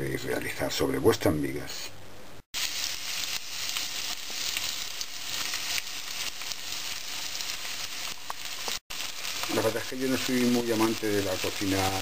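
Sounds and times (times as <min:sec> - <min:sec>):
peppers sizzling in hot oil: 0:02.5 - 0:12.0.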